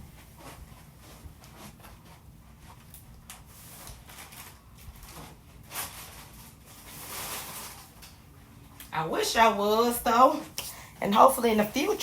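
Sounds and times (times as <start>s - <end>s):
household items rustling: 0.0s - 8.3s.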